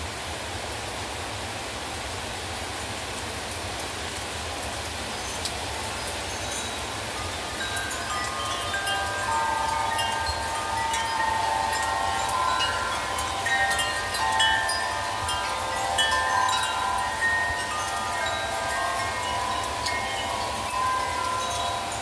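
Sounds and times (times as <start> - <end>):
heavy rain hiss: 0.0 - 22.0
wind chimes ringing: 5.0 - 22.0.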